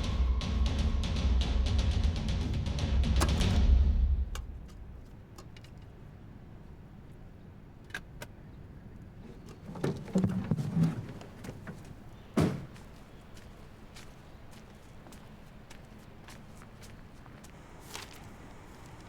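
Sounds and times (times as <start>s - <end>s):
knocks and shuffling: 9.2s - 19.0s
sharp thump: 12.4s - 12.8s.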